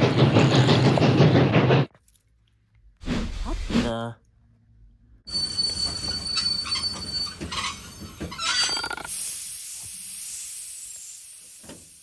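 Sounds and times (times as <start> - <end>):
train squealing and clattering: 0.0 - 1.9, 5.3 - 9.1
train hissing: 9.0 - 12.0.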